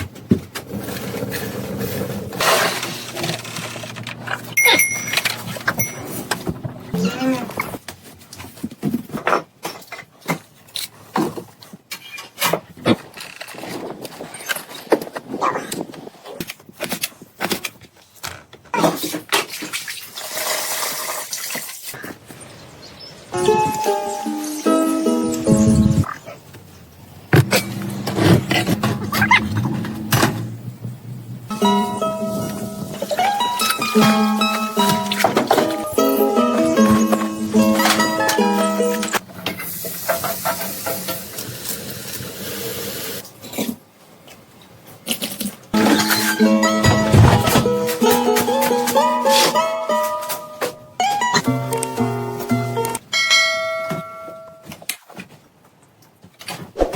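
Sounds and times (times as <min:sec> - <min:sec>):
water splashing and pouring: 0:19.3 - 0:22.0
plucked-string music: 0:31.5 - 0:39.2, 0:45.8 - 0:53.0
knocks and clatter: 0:45.8 - 0:49.0.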